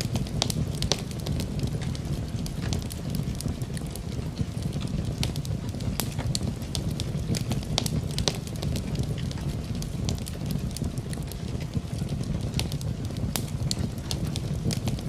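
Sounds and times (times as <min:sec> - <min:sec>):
rain: 0:00.0 - 0:15.0
wood fire crackling and popping: 0:00.0 - 0:15.0.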